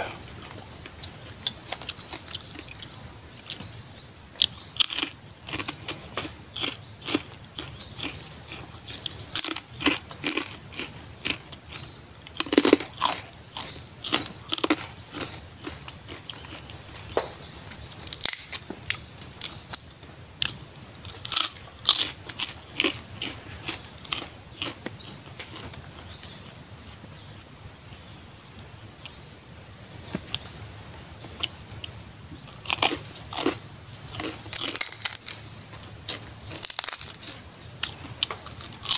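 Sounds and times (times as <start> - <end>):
birds chirping: 0.0 - 38.9
chewing crisp food: 1.3 - 17.0, 17.6 - 27.5, 31.4 - 38.9.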